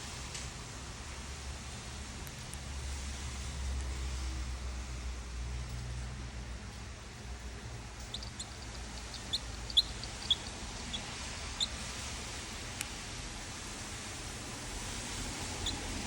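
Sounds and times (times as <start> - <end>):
small bird chirping: 8.0 - 12.3, 15.2 - 16.0.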